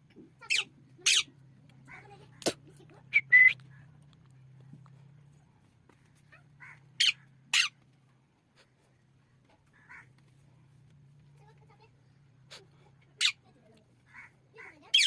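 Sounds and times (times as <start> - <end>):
parrot squawking: 0.4 - 1.3, 6.6 - 7.7, 14.2 - 15.0.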